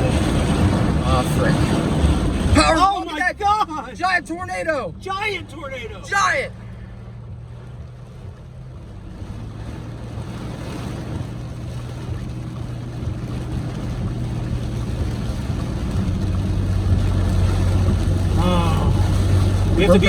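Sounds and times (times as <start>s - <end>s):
low engine hum: 0.0s - 20.0s
wind and road noise: 0.0s - 20.0s.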